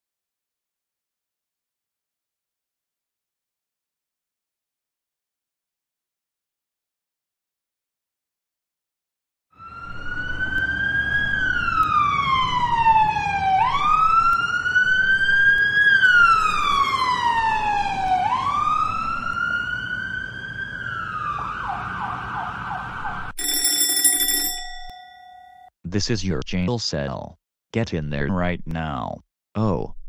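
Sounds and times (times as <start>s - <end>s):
police siren wailing and yelping: 9.6s - 23.4s.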